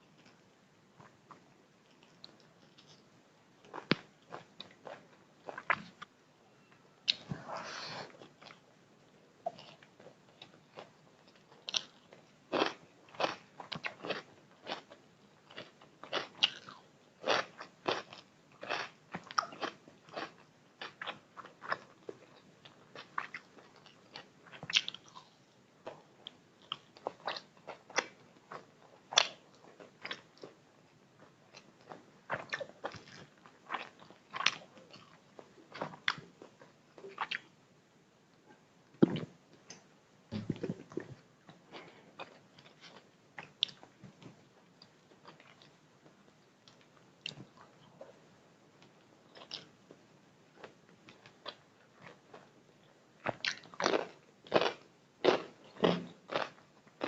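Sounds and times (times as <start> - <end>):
person chewing food: 1.0 - 6.0, 9.5 - 30.6, 31.2 - 37.5, 40.4 - 45.7, 53.2 - 57.0.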